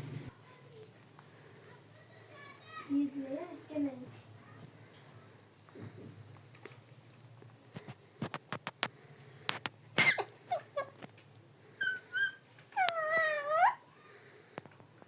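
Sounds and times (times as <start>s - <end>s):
parrot chirping: 11.8s - 13.8s.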